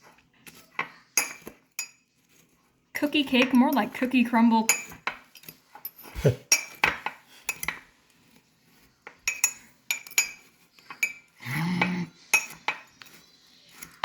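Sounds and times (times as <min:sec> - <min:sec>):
fork clinking against ceramic mug: 0:00.5 - 0:02.1, 0:04.7 - 0:07.9, 0:09.1 - 0:14.0.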